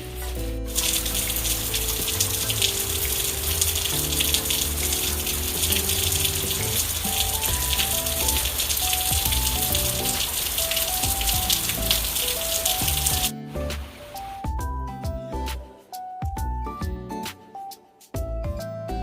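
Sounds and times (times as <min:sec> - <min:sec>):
rain hiss: 0:00.0 - 0:14.4
slow melody of held notes: 0:00.5 - 0:14.4.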